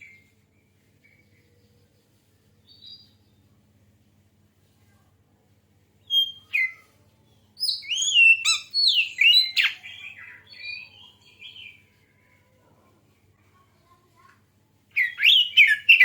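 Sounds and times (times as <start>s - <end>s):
bird singing whistled notes: 6.0s - 6.9s, 7.6s - 11.8s, 15.0s - 16.0s.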